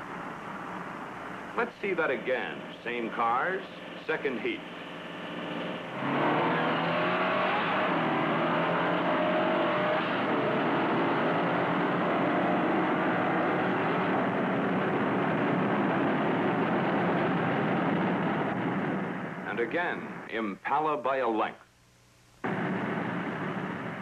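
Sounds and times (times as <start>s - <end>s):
car engines accelerating hard: 4.1s - 19.2s.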